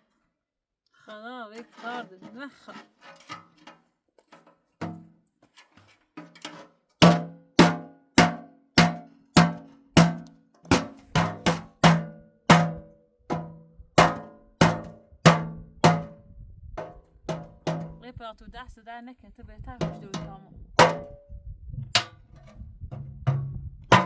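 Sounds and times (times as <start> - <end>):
hard ringing knocks: 7.0 - 16.2, 19.9 - 21.2, 23.0 - 24.0.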